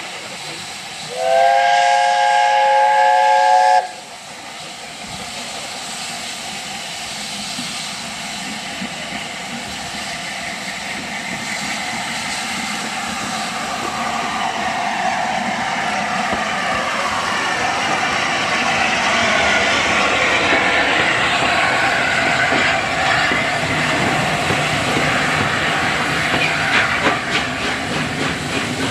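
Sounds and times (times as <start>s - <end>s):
train rushing noise: 0.0s - 28.9s
steam locomotive whistle: 1.1s - 4.0s.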